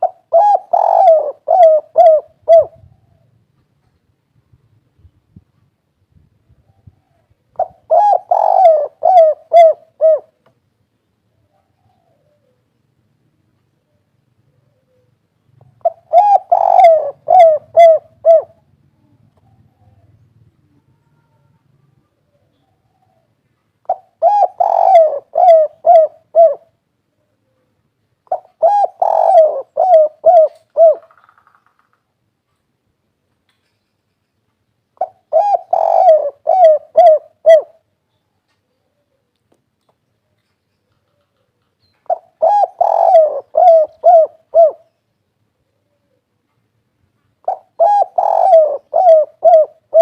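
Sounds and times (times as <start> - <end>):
dove cooing: 0.0 - 3.4, 6.6 - 10.4, 11.3 - 12.7, 14.4 - 31.4, 35.0 - 37.9, 40.9 - 45.0, 47.4 - 50.0.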